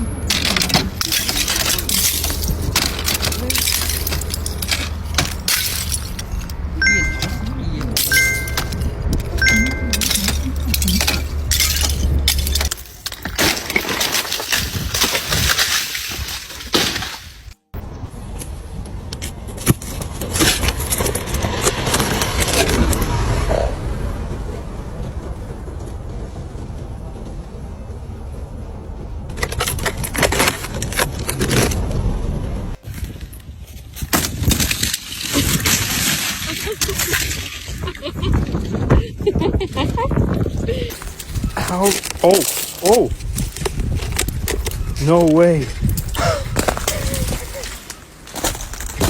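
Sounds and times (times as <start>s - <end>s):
steady low rumble: 0.0s - 15.6s, 17.8s - 32.8s
low steady hum: 0.0s - 16.4s
ice and snow crunching: 0.0s - 17.6s, 29.4s - 38.5s, 40.8s - 49.0s.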